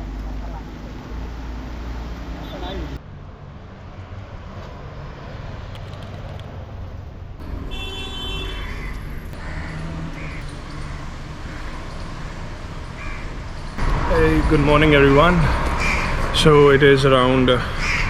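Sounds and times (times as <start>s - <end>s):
road traffic rumble: 0.0s - 18.0s
car horn toot: 7.4s - 9.0s.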